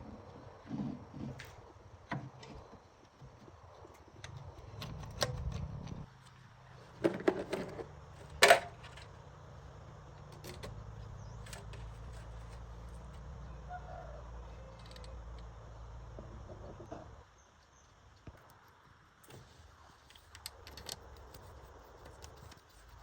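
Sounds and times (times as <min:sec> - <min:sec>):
handling clicks and knocks: 0:06.9 - 0:09.2, 0:10.2 - 0:12.7.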